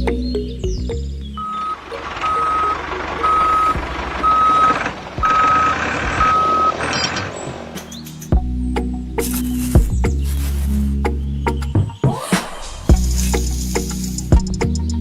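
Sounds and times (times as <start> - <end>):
noisy background: 0.0 - 11.0
reversing alarm beeping: 1.4 - 7.3.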